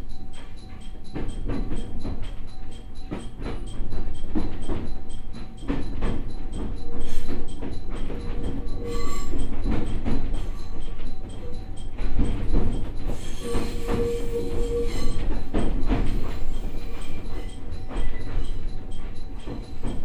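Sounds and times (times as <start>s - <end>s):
train low rumble: 0.0s - 20.0s
thin wheel squeal: 8.6s - 9.4s, 13.0s - 18.6s.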